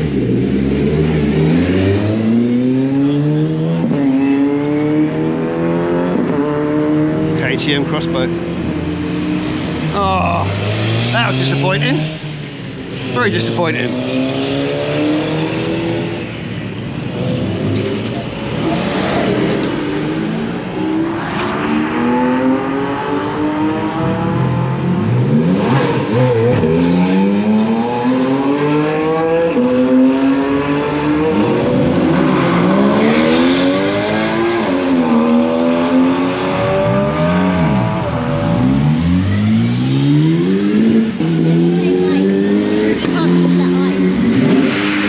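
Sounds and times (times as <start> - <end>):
car engines revving and accelerating: 0.0 - 45.0.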